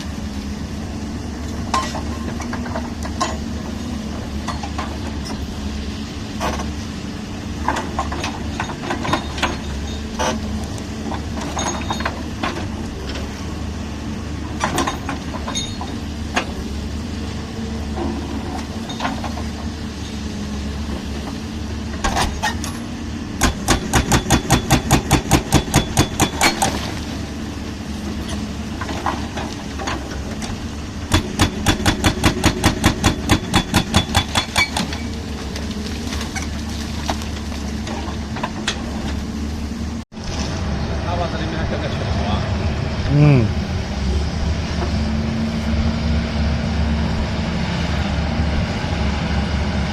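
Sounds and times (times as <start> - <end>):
excavator diesel engine running: 0.0 - 49.9
hydraulic breaker hammering concrete: 23.4 - 26.7, 31.1 - 34.9.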